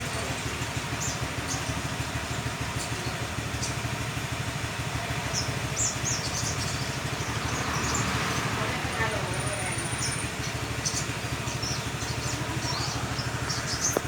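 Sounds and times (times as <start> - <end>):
engine idling rumble: 0.0 - 14.0
bird chirping: 5.2 - 14.0.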